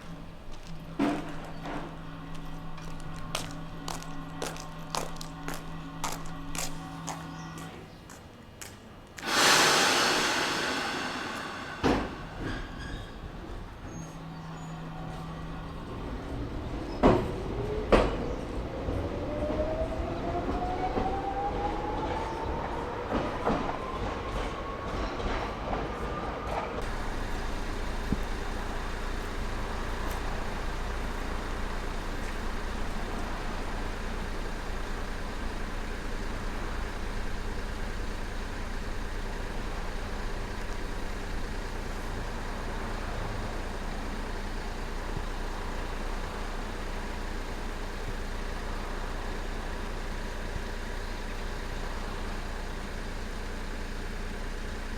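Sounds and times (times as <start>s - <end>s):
train low rumble: 0.0s - 8.4s, 9.2s - 54.9s
electric train motor whine: 9.2s - 13.1s, 26.8s - 44.1s.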